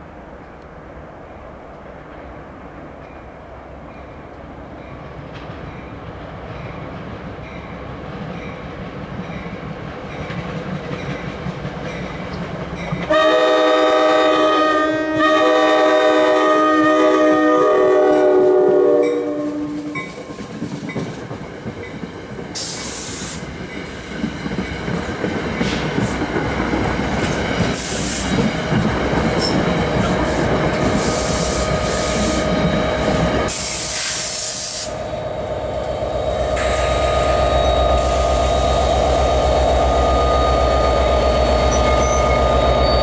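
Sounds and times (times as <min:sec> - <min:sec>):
diesel locomotive engine: 0:00.0 - 0:43.0
train wheels clattering over rails: 0:04.8 - 0:14.2, 0:19.7 - 0:35.1
train horn: 0:13.1 - 0:20.1, 0:36.3 - 0:43.0
short bursts of hiss: 0:22.6 - 0:23.4, 0:27.8 - 0:28.4, 0:30.9 - 0:32.5, 0:33.5 - 0:35.1, 0:38.0 - 0:39.8.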